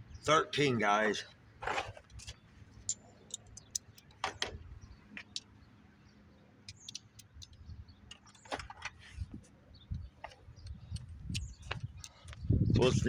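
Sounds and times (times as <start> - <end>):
socket wrench clicking on metal: 2.2 - 4.6, 6.6 - 8.6.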